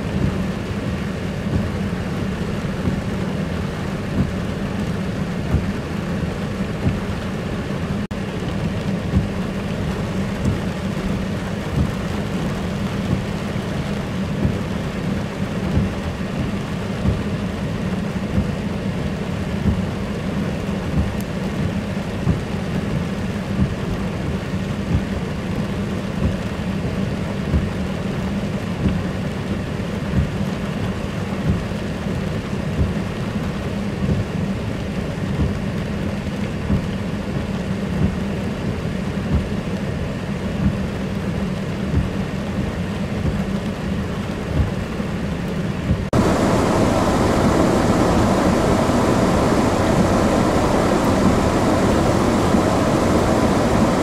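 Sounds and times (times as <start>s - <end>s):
heavy rain: 0.0s - 54.0s
low rumble: 46.0s - 54.0s.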